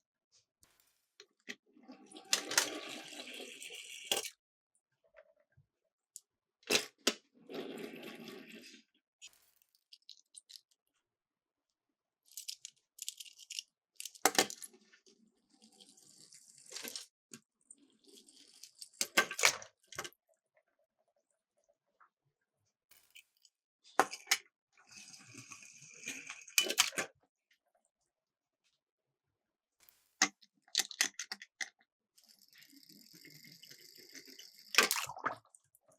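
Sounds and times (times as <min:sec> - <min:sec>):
toy cars rattling down plastic track: 0:02.1 - 0:04.4.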